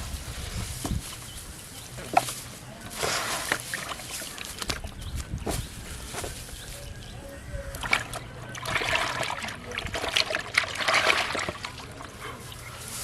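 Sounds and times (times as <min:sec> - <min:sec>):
water splashing: 0:07.7 - 0:12.2.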